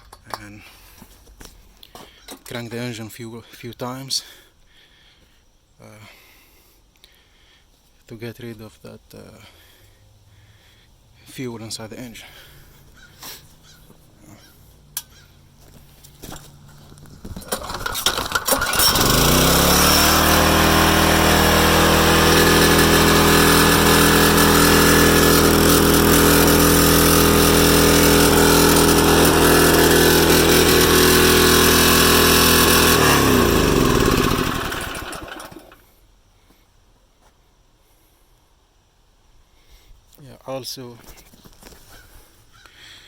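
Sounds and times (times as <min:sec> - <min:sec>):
engine pull-start: 0:17.2 - 0:35.8
small gas engine running: 0:17.2 - 0:35.9
engine spinning down: 0:17.3 - 0:35.8.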